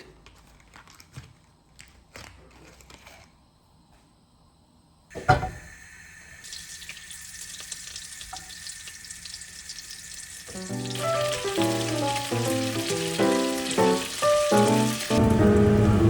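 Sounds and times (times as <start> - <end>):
water running from tap: 5.1 - 15.3
background music: 10.7 - 16.0.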